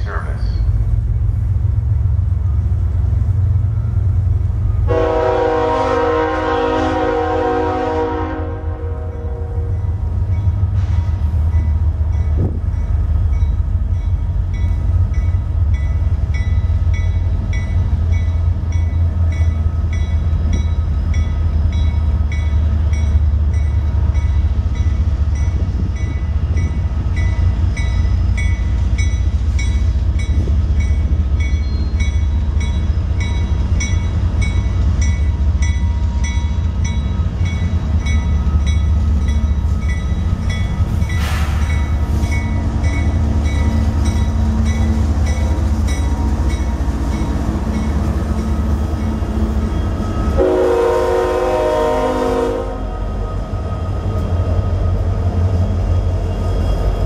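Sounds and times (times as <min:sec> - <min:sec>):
freight train rumble: 0:00.0 - 0:57.0
train bell ringing: 0:09.1 - 0:50.6.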